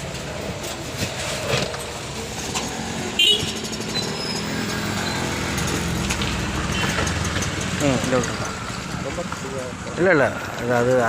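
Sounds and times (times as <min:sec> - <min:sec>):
sharp high-pitched squeak: 0:03.4 - 0:05.4.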